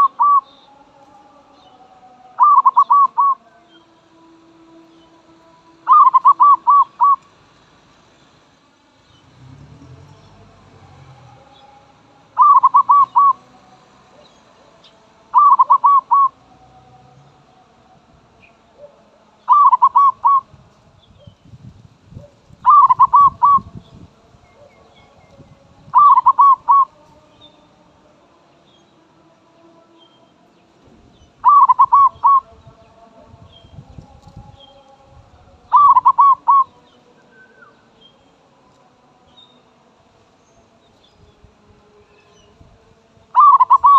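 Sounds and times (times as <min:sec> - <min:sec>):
dove cooing: 0:00.0 - 0:00.5, 0:02.4 - 0:03.4, 0:05.8 - 0:07.2, 0:12.4 - 0:13.4, 0:15.3 - 0:16.4, 0:18.8 - 0:20.5, 0:22.2 - 0:23.8, 0:25.9 - 0:27.0, 0:31.4 - 0:32.5, 0:35.7 - 0:36.7, 0:43.4 - 0:43.9.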